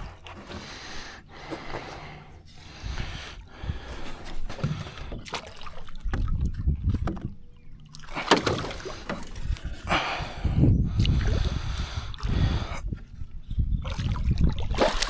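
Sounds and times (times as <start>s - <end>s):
water splashing against boat: 0.0s - 12.8s, 13.8s - 15.0s
low rumbling: 0.0s - 14.6s.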